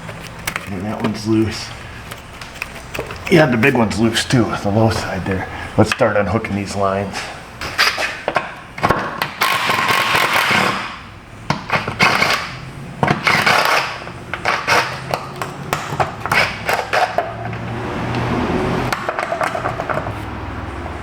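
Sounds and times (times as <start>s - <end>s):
hand tools clicking and knocking: 7.6s - 20.3s.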